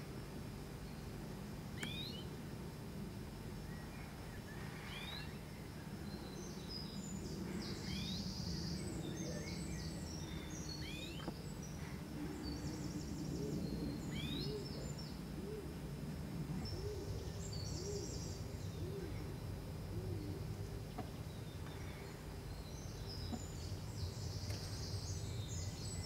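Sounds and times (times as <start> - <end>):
steady low rumble: 0.0 - 26.0
nestlings chirping and twittering: 1.8 - 2.3, 3.7 - 5.5, 6.1 - 15.2.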